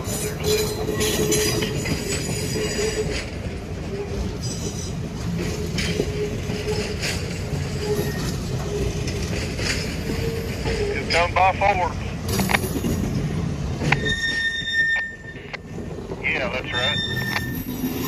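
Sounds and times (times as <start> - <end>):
train wheels rumbling on rail: 0.0 - 18.0
thin wheel squeal: 13.8 - 15.5, 16.7 - 18.0.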